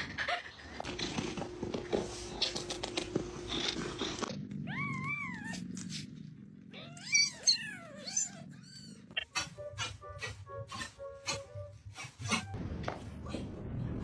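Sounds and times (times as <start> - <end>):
cat meowing: 4.6 - 5.7, 6.7 - 9.3.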